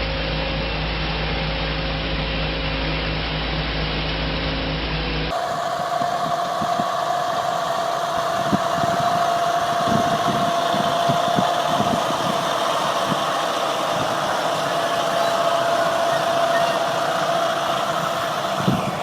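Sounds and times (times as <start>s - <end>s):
heavy farm machinery engine: 5.3s - 19.0s.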